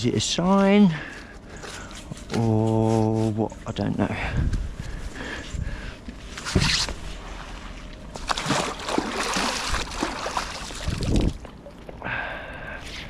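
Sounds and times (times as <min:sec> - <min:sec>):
water sloshing and splashing: 0:06.1 - 0:12.0.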